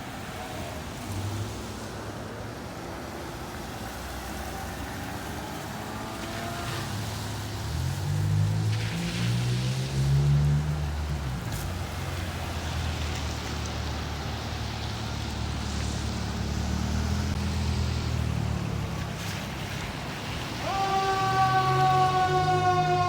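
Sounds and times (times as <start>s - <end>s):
road noise: 0.0s - 23.0s
fire truck siren: 20.4s - 23.0s.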